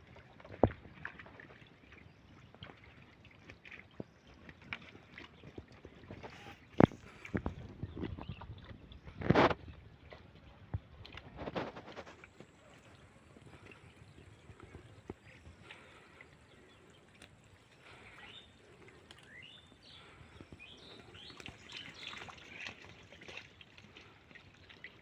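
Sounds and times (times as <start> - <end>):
faint bird chirps: 12.5 - 23.0.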